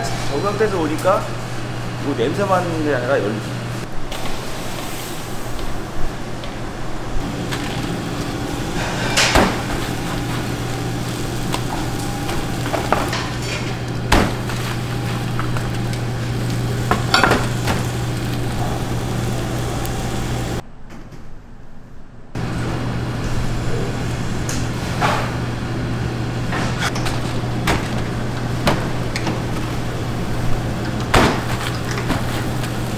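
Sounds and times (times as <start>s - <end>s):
low machine hum: 0.0s - 20.6s, 22.3s - 32.9s
utensils and pans clinking: 8.7s - 10.0s, 11.7s - 13.8s, 16.9s - 17.9s.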